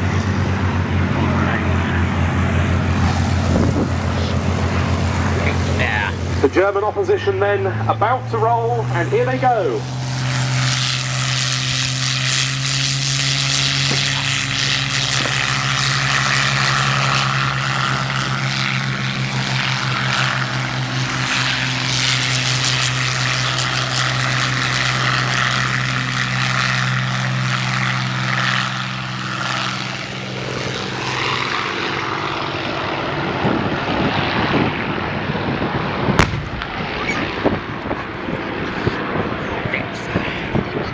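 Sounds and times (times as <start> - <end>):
propeller engine drone: 0.0 - 40.9
sharp crack: 36.2 - 37.5.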